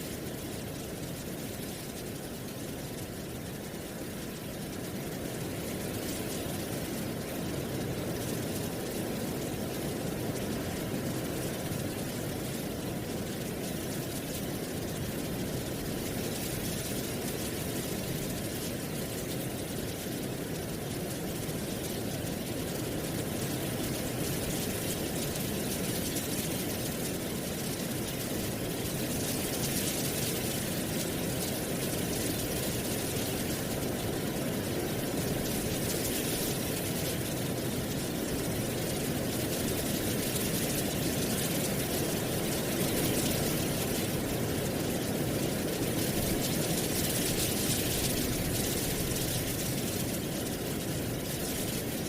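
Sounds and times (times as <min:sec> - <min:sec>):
wind rustling dry leaves: 0:00.0 - 0:52.0.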